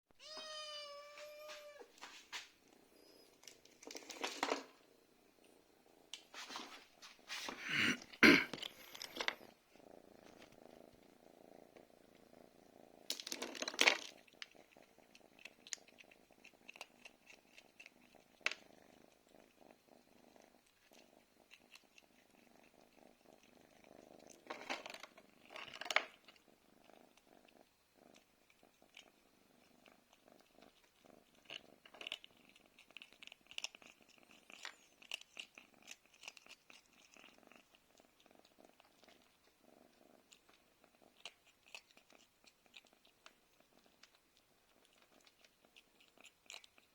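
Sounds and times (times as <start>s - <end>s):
cat meowing: 0.2s - 2.0s
rustling and crackling: 0.4s - 12.3s.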